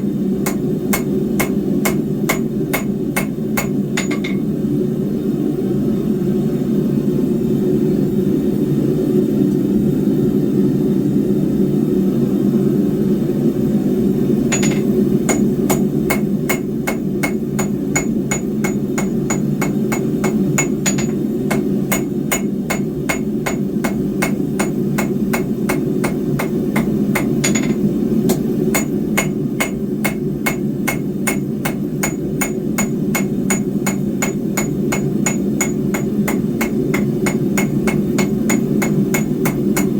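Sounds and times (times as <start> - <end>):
hammer ringing on steel: 0.5 - 4.5, 14.5 - 27.8, 28.7 - 39.9.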